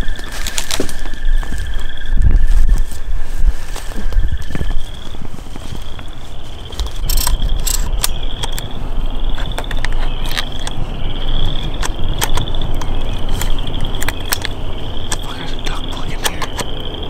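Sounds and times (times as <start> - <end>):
frogs trilling: 0.0 - 17.0
shotgun handling clicks: 6.7 - 8.7, 9.3 - 10.8, 11.7 - 15.3, 16.1 - 16.7.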